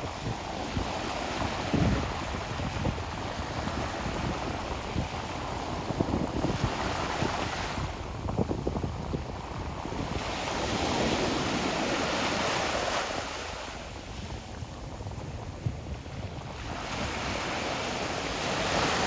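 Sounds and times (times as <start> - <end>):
ocean surf washing on shore: 0.0 - 19.0.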